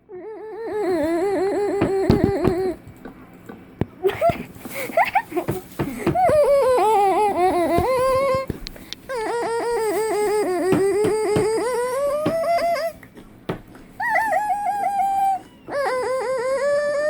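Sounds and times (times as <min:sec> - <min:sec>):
person making warbling vocal noises: 0:00.2 - 0:02.8.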